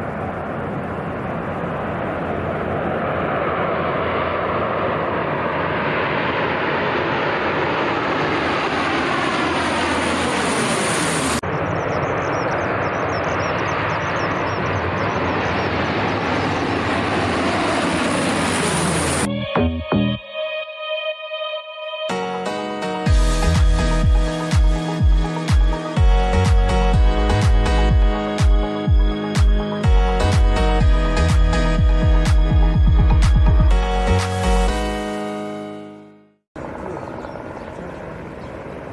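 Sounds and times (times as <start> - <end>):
aircraft engines passing: 0.0 - 20.5, 22.1 - 38.9
background music: 19.2 - 36.4.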